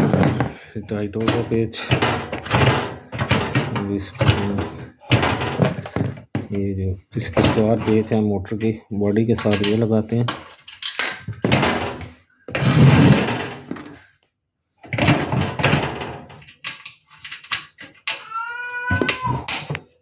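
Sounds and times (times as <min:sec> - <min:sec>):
scraping and rustling handling noise: 0:00.0 - 0:14.1
cat meowing: 0:18.1 - 0:19.6.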